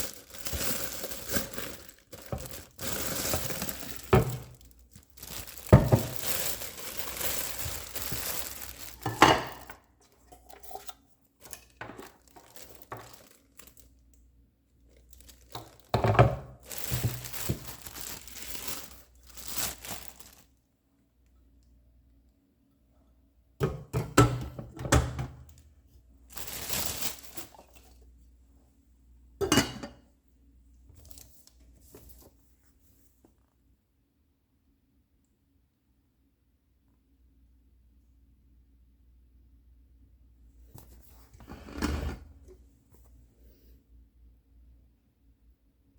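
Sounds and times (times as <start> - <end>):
packaging crinkling and tearing: 0.0 - 9.7, 11.4 - 13.9, 14.9 - 16.0, 16.6 - 20.5, 26.3 - 27.9.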